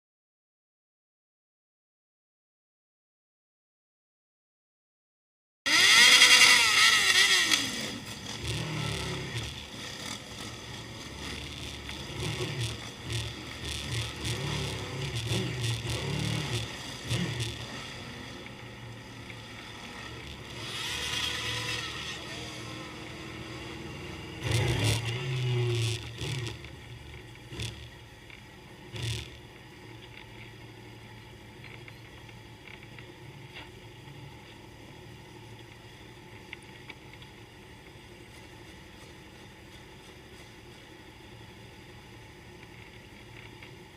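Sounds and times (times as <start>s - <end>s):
motorcycle engines revving: 5.7s - 32.0s.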